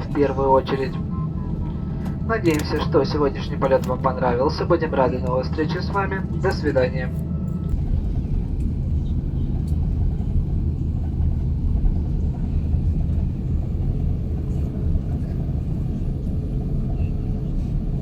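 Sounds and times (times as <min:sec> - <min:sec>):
low rumble inside aircraft cabin: 0:00.0 - 0:18.0.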